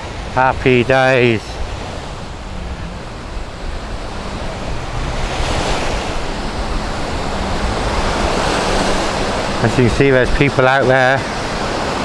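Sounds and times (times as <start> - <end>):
waves breaking on a beach: 0.0 - 12.0
wind on the microphone: 0.0 - 12.0.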